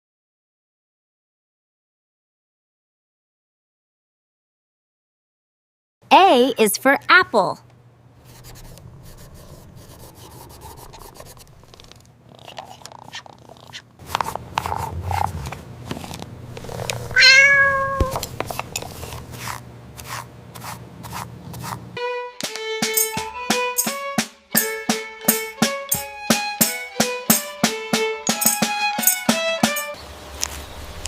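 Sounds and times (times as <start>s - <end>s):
cat purring: 8.2s - 13.9s, 14.5s - 18.0s
cat meowing: 17.0s - 18.2s
plucked-string music: 22.0s - 30.0s.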